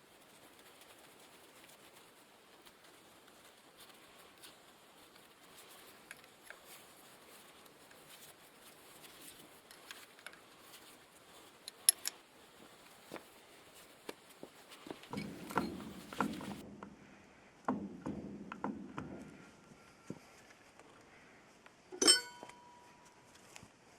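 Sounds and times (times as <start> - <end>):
faint clicks and taps: 0.2 - 16.9
clatter of small parts: 5.5 - 12.2.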